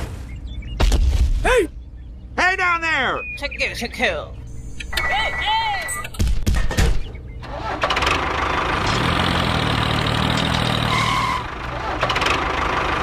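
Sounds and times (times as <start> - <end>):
engine idling: 7.2 - 13.0.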